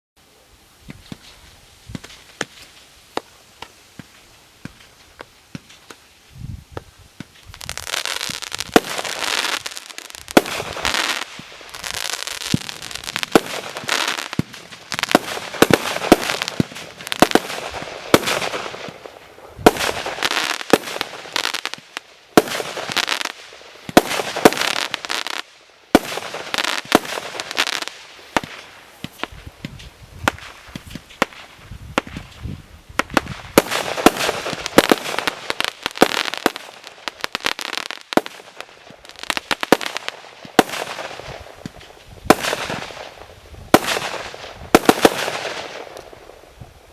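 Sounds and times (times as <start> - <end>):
firework crackling: 0.4 - 46.9
firework bangs: 0.8 - 6.1, 6.7 - 46.6
sharp pops: 0.8 - 6.1, 28.3 - 36.6.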